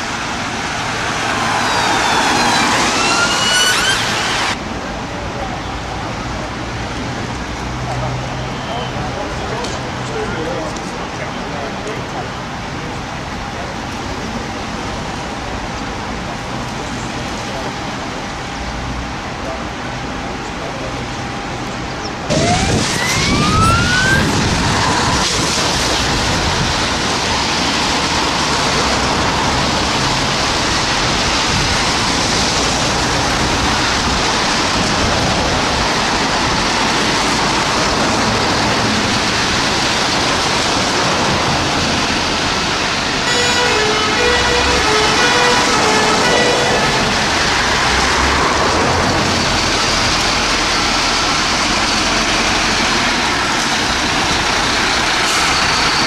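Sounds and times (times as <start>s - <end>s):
rising pitch sweep: 0.0s - 4.6s, 22.3s - 26.1s, 43.2s - 48.6s
vehicle noise rushing: 0.0s - 5.1s, 21.4s - 56.0s
fire engine two-tone horns: 0.9s - 4.6s, 43.0s - 48.4s.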